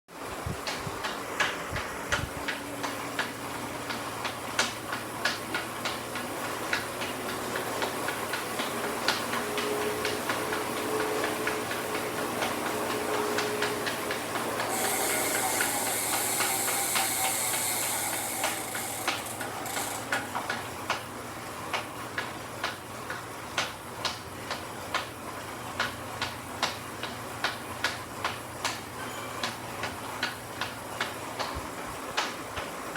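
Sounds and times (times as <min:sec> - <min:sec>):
bike trainer whir and hiss: 0:00.1 - 0:32.9
bike trainer clicking: 0:00.6 - 0:25.2
loud hiss: 0:14.6 - 0:20.2.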